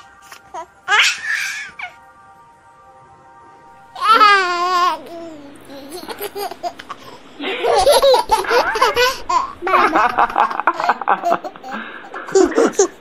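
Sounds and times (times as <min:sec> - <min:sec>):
laughter: 0:07.4 - 0:13.0.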